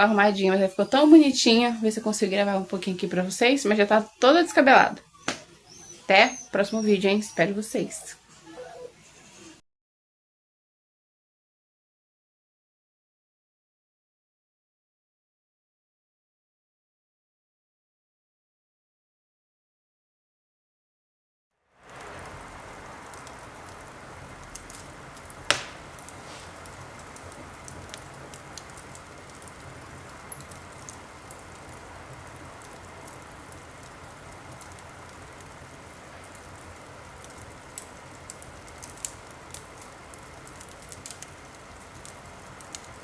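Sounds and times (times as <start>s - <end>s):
bonfire crackling and popping: 21.7s - 43.0s.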